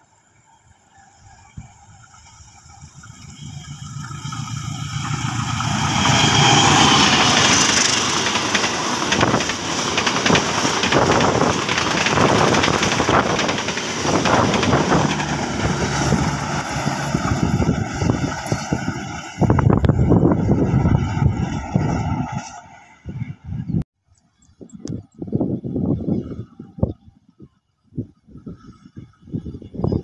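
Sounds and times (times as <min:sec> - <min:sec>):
diesel locomotive approaching: 0:00.0 - 0:23.8
carriage wheels clattering over rails: 0:05.7 - 0:15.4.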